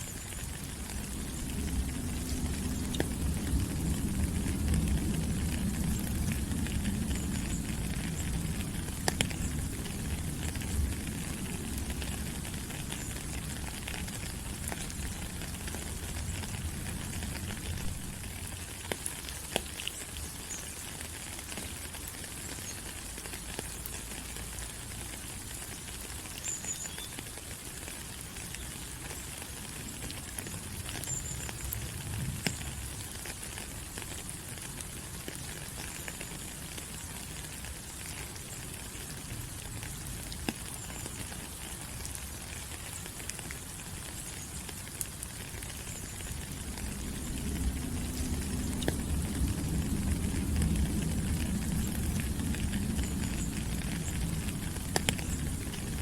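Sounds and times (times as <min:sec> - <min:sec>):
rain falling on leaves: 0:00.0 - 0:56.0
low rumble: 0:00.9 - 0:12.3, 0:46.1 - 0:56.0.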